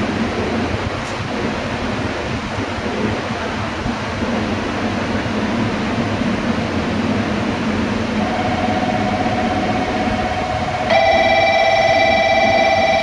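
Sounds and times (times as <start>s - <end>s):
train equipment hum: 0.0s - 13.0s
steady high tone: 8.2s - 13.0s.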